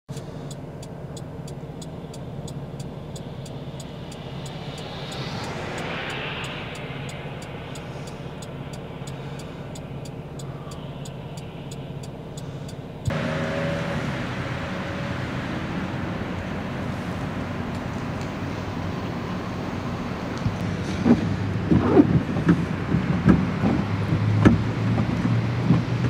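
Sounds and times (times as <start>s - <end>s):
traffic engine hum: 0.0s - 26.0s
hissy traffic noise: 0.1s - 26.0s
vehicle passing: 1.0s - 26.0s.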